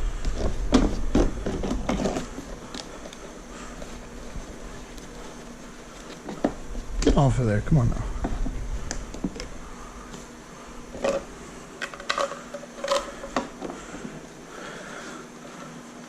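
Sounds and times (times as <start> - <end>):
faint steady hum: 0.0 - 16.0
clicks and knocks of parts handled: 11.8 - 13.8.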